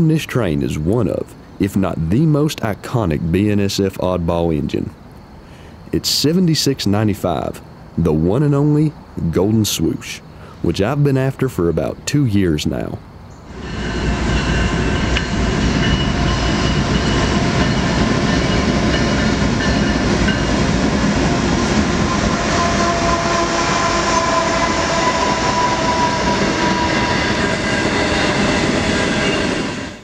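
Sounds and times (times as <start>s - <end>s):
diesel locomotive engines running: 13.4s - 30.0s
steel wheels rumbling over rails: 13.5s - 30.0s.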